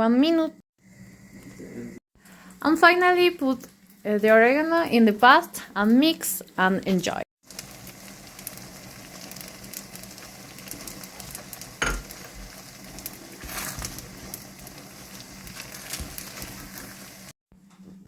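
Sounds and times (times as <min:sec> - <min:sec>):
pasta sizzling in a pan: 0:07.4 - 0:17.4.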